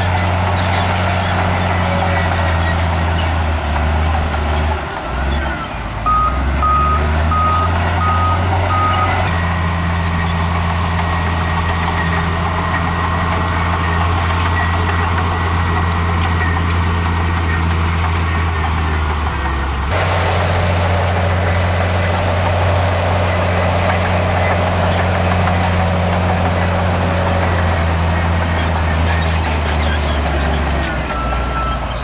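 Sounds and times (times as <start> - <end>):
heavy diesel machinery running: 0.0 - 32.0
reversing alarm beeping: 6.0 - 9.4.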